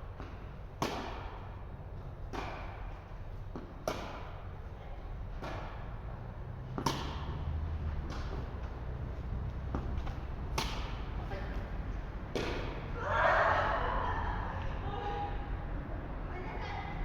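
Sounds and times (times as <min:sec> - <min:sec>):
tennis ball struck by racket: 0:00.2 - 0:01.6, 0:02.2 - 0:02.9, 0:03.5 - 0:04.5, 0:05.3 - 0:11.2, 0:12.2 - 0:12.9.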